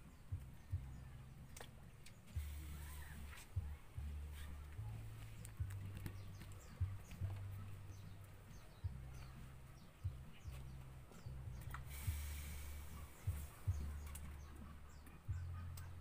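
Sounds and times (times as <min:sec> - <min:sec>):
birds chirping: 0:00.0 - 0:16.0
low uneven rumble: 0:00.0 - 0:16.0
hiss: 0:11.9 - 0:13.5.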